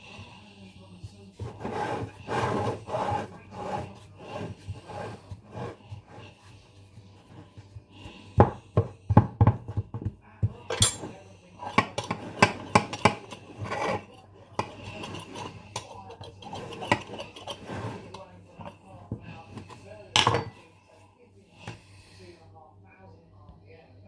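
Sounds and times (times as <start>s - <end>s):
kitchen utensils clinking on tins: 10.6s - 20.7s.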